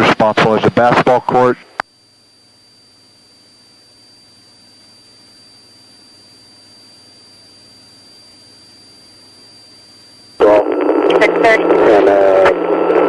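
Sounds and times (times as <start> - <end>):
radio static hiss: 0.0 - 1.9, 9.5 - 13.0
high-pitched whine: 0.0 - 13.0.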